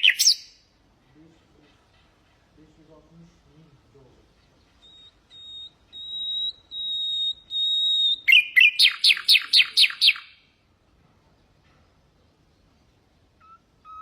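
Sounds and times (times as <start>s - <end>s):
nightingale singing: 0.0s - 0.8s, 4.0s - 10.7s, 12.1s - 14.0s.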